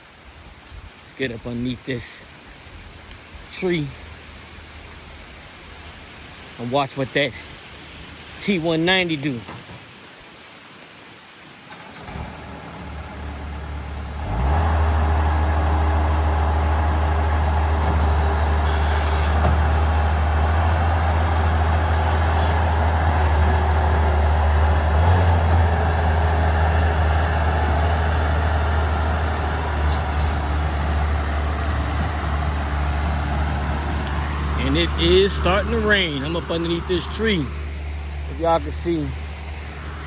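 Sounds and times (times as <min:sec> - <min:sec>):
diesel engine revving: 0:11.7 - 0:40.0.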